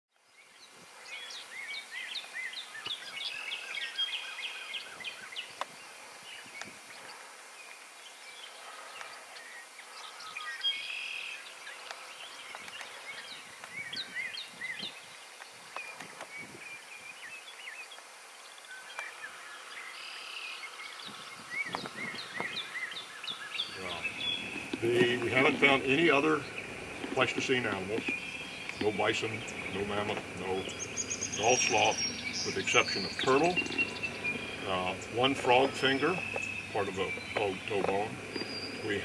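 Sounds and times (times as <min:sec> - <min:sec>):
faint outdoor hiss: 0:00.1 - 0:39.0
songbirds chirping: 0:00.1 - 0:39.0.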